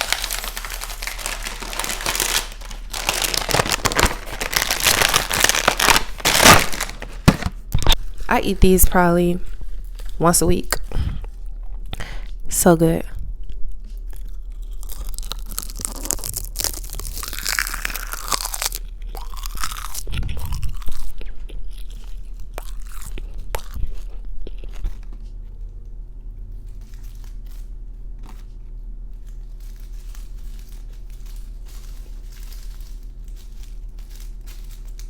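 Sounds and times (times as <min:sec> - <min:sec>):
crunchy chewing: 0:13.4 - 0:35.0.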